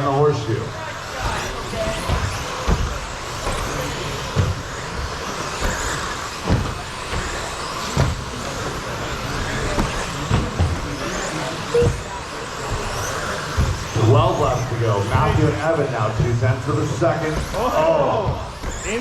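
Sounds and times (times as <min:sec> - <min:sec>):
toy car motors whirring: 0:00.1 - 0:19.0
sharp knocks: 0:01.2 - 0:04.8, 0:05.5 - 0:08.5.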